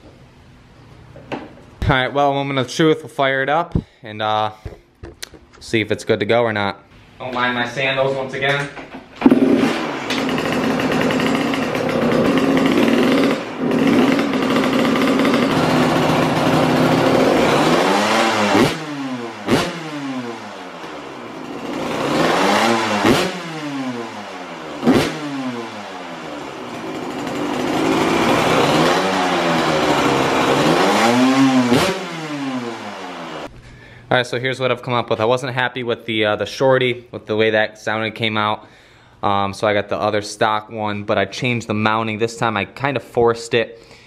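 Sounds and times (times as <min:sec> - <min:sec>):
exhaust cracks: 0:07.3 - 0:33.8
motorbike engine revving: 0:09.2 - 0:33.5.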